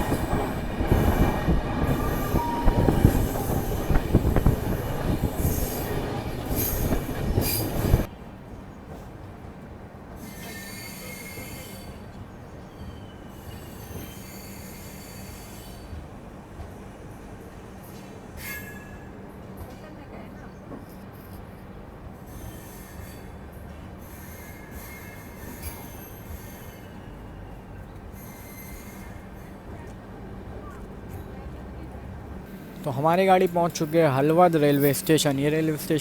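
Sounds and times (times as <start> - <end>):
high wheel squeal: 0.0 - 8.1, 28.2 - 29.6
train rumbling on rails: 0.0 - 36.0.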